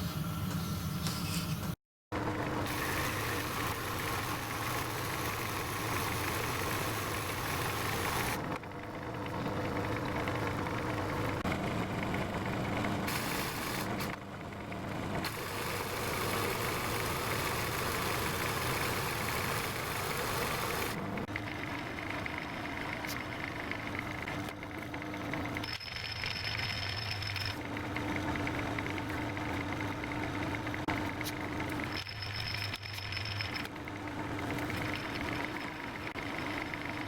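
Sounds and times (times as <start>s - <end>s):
metal lathe running: 15.2s - 37.0s.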